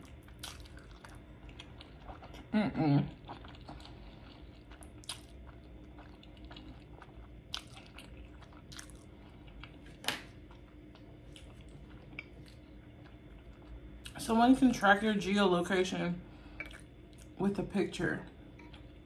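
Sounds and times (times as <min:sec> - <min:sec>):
chewing noodles: 0:00.0 - 0:14.2.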